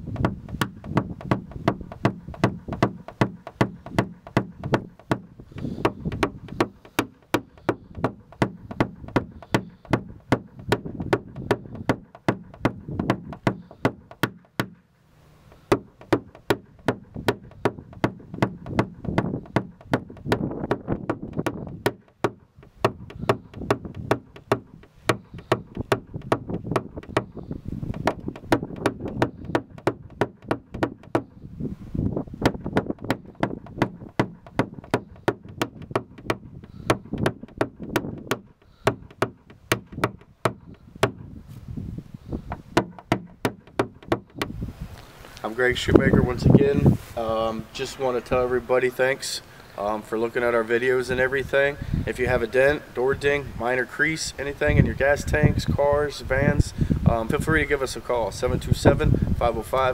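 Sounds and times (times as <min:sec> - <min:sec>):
tool tapping on car body panel: 0:00.0 - 0:14.8, 0:15.5 - 0:31.4, 0:32.4 - 0:41.3, 0:42.4 - 0:44.6.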